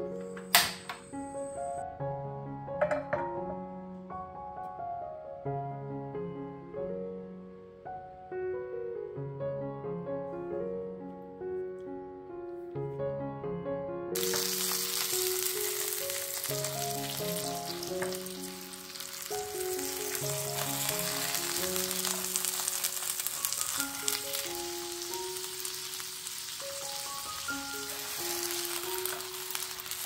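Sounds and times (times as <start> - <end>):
light background music: 0.0 - 30.0
oil sizzling in a frying pan: 14.2 - 30.0.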